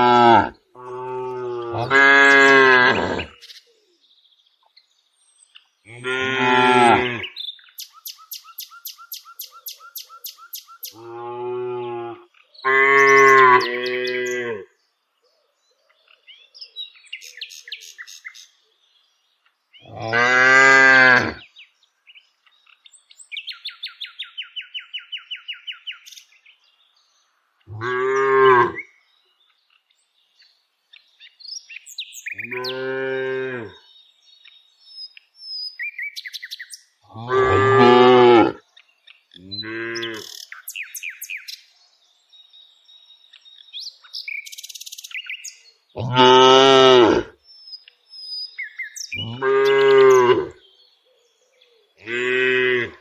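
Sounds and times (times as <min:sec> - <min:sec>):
cows mooing: 0:00.0 - 0:03.3, 0:05.9 - 0:07.3, 0:19.9 - 0:21.4, 0:27.7 - 0:28.8, 0:32.5 - 0:33.8, 0:37.1 - 0:38.6, 0:46.0 - 0:47.3, 0:49.2 - 0:50.6
bird chirping: 0:00.7 - 0:11.3, 0:12.3 - 0:20.2, 0:21.0 - 0:53.0.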